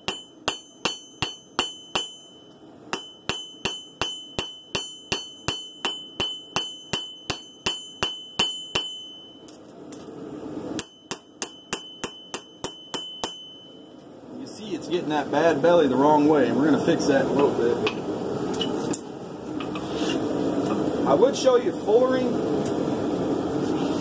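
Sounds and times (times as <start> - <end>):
hammer striking steel on anvil: 0.0 - 9.7, 10.7 - 14.0.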